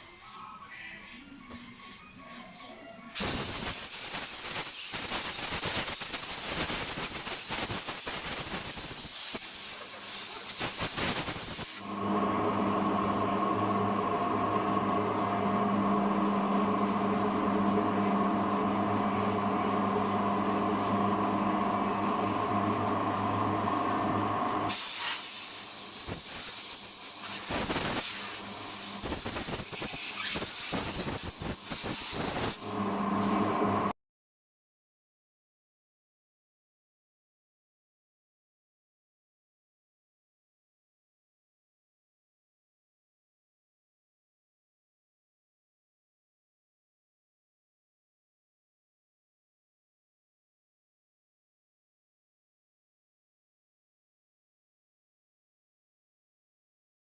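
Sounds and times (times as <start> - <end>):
hissing air jet: 3.2 - 11.8, 24.7 - 32.6
steady machine hum: 11.3 - 24.8, 31.2 - 33.9.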